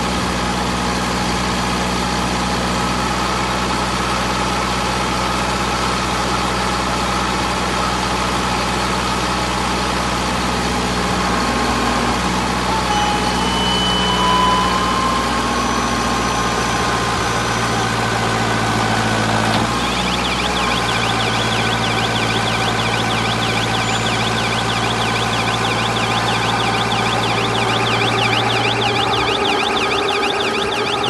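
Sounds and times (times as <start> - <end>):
baler machine humming: 11.1 - 31.0
fast-warbling high whine: 12.5 - 18.3, 19.8 - 31.0.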